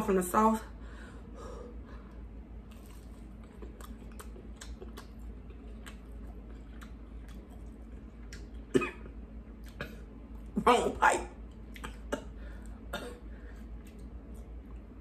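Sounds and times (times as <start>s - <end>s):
person chewing food: 2.0s - 10.6s, 11.4s - 15.0s
person coughing: 8.7s - 9.1s, 11.8s - 13.3s.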